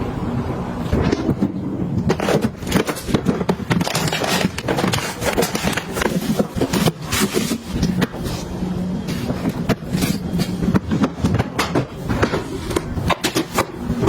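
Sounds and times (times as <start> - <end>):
packaging clicks and crinkles: 2.1 - 8.5, 9.1 - 11.6.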